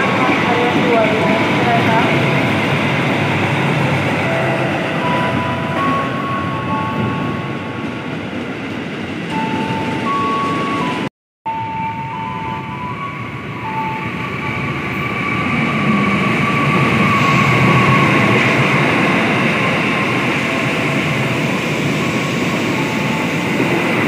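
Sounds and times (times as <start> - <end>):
train wheel and rail noise: 0.0 - 24.0.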